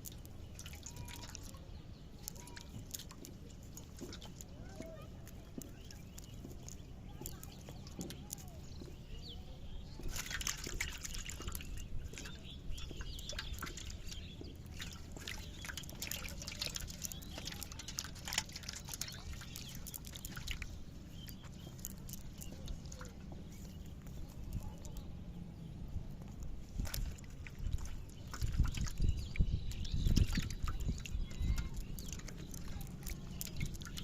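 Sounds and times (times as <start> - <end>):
water splashing and dripping: 0.0 - 25.2, 25.9 - 34.0
steady low rumble: 2.8 - 34.0.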